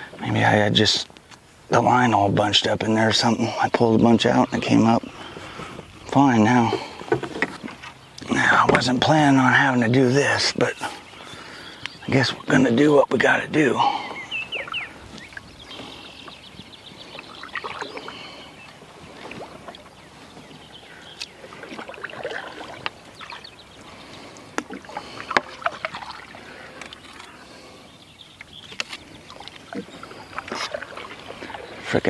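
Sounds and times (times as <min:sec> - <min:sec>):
paddle splashing in water: 0:13.9 - 0:32.0.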